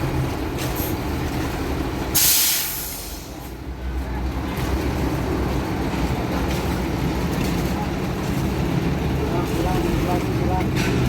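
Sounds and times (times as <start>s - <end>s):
truck diesel engine running: 0.0s - 11.0s
air brake hiss: 2.2s - 3.4s.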